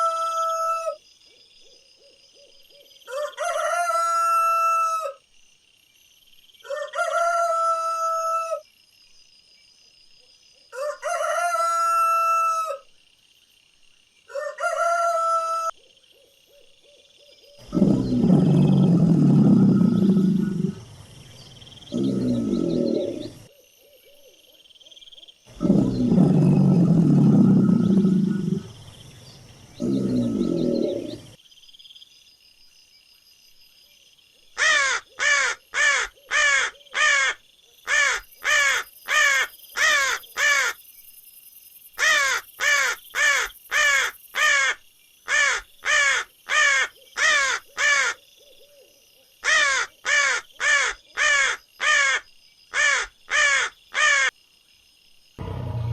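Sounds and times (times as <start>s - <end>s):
large animal deep calls: 17.6s - 23.5s, 25.5s - 31.4s, 55.4s - 55.9s
crow cawing: 34.6s - 40.8s, 42.0s - 48.2s, 49.4s - 54.3s.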